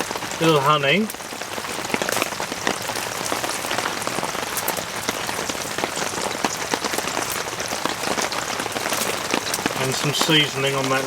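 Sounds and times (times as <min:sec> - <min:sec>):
heavy rain on a tent: 0:00.0 - 0:11.0.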